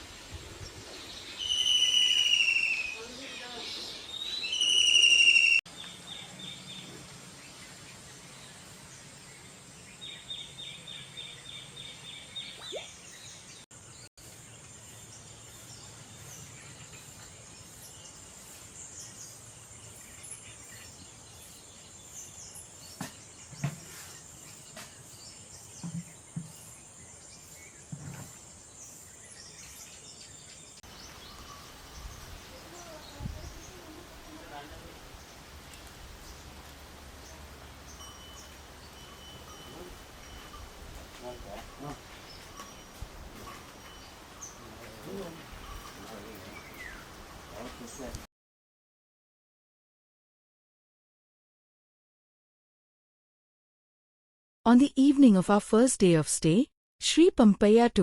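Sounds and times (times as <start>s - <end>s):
birds whistling: 1.1s - 5.6s, 42.3s - 48.2s
birds trilling: 1.3s - 5.6s, 37.2s - 48.2s.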